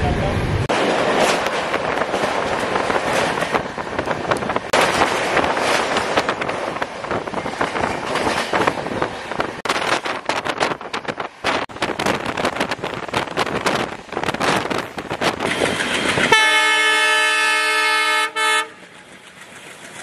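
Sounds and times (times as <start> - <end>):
train rattling across a bridge: 0.0 - 20.0
wind on microphone: 1.2 - 16.4.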